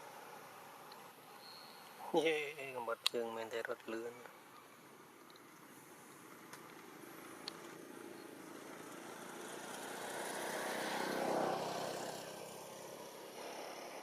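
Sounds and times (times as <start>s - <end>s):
vehicle driving past: 7.8s - 14.0s.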